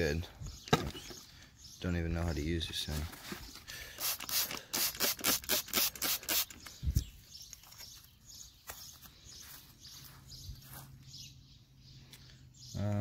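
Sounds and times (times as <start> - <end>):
spray bottle squirting: 3.9 - 6.7.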